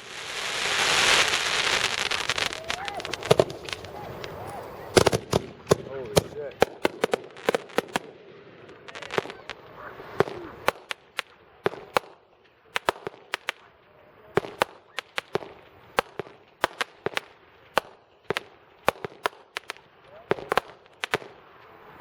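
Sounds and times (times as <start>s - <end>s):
firework whistle: 0.0s - 5.4s
firework fizzing hiss: 0.0s - 12.2s
fireworks cracks and pops: 0.0s - 22.0s.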